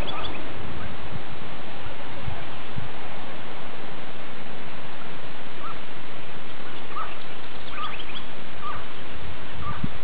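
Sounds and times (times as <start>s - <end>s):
rising bird chirps: 0.0s - 0.5s, 6.6s - 9.0s
short bird calls: 0.0s - 0.5s, 6.6s - 9.0s, 9.6s - 9.9s
steady hiss: 0.0s - 10.0s.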